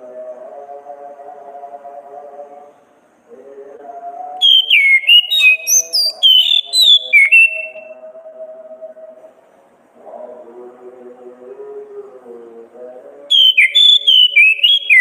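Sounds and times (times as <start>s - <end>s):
thrush singing whistled notes: 4.4s - 8.0s, 13.3s - 15.0s.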